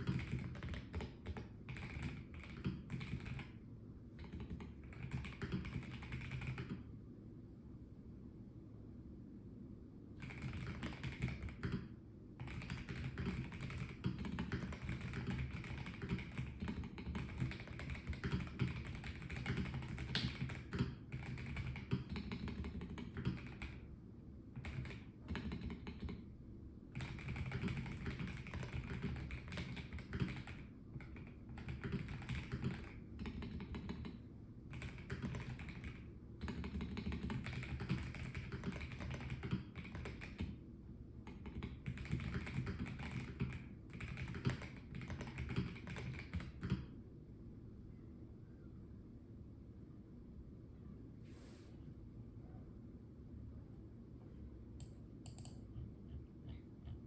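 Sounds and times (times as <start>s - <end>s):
mechanical keyboard typing: 0.0s - 3.6s, 4.2s - 6.8s, 10.2s - 23.8s, 24.6s - 26.2s, 26.9s - 40.6s, 41.2s - 46.9s, 54.8s - 57.0s.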